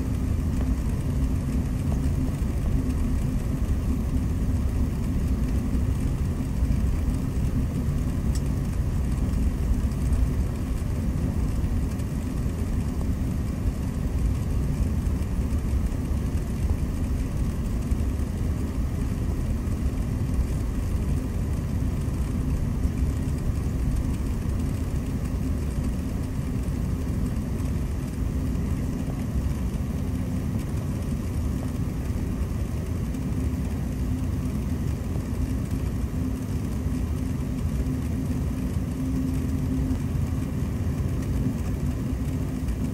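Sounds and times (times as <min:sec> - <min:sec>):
faint hiss of cabin air: 0:00.0 - 0:42.9
jet engines low rumble: 0:00.0 - 0:42.9.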